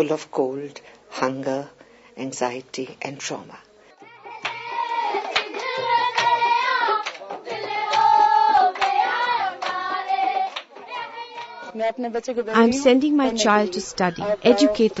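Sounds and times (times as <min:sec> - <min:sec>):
rhythmic hand clapping: 0:04.0 - 0:11.7
children singing: 0:04.0 - 0:11.8.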